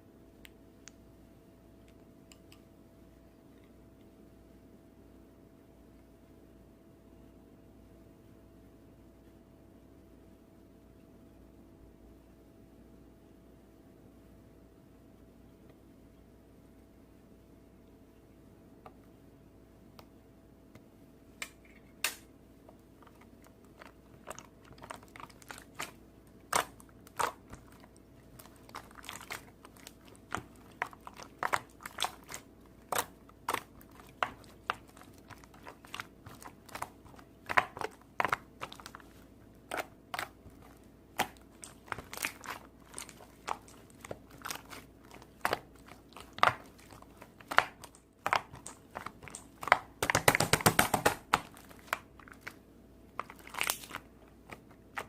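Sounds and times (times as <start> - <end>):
faint steady hum: 0.0 - 55.0
crunchy chewing: 22.7 - 50.2, 51.3 - 55.0.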